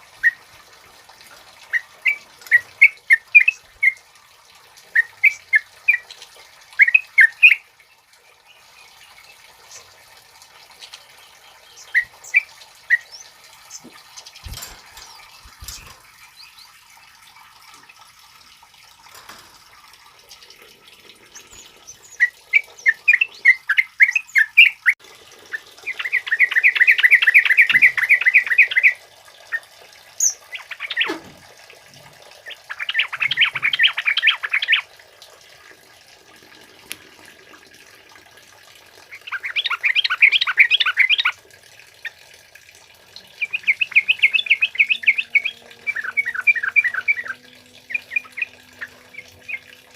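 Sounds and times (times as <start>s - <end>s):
bulbul chattering song: 1.7s - 4.0s, 10.8s - 16.8s, 25.8s - 29.0s, 32.5s - 34.8s, 43.3s - 49.9s.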